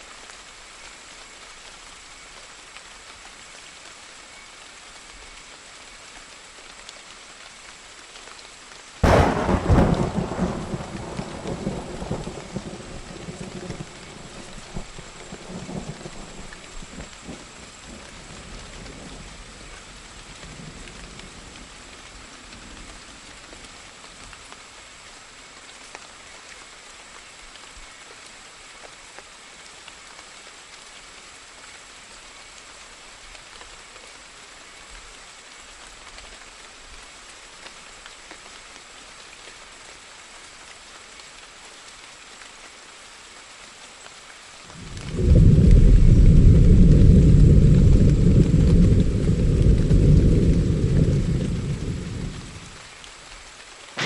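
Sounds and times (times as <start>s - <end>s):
steady rain falling: 0.0s - 54.0s
low thunder rumble: 9.0s - 21.8s, 44.7s - 52.8s.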